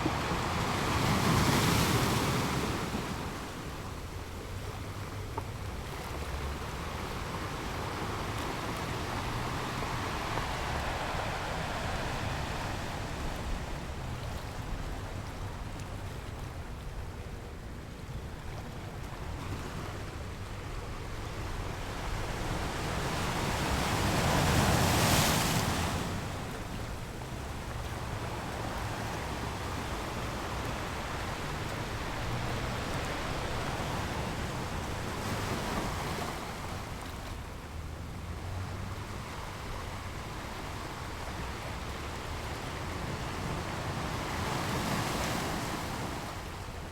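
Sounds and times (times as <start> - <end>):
waves breaking on a beach: 0.0 - 46.9.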